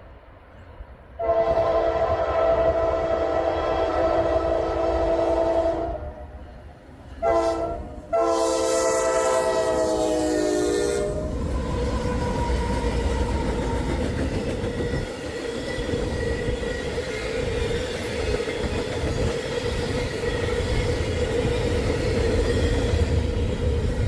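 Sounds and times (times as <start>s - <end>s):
locomotive air horn blasts: 1.2s - 6.3s, 7.2s - 11.2s
train wheels clacking on rails: 11.6s - 24.0s.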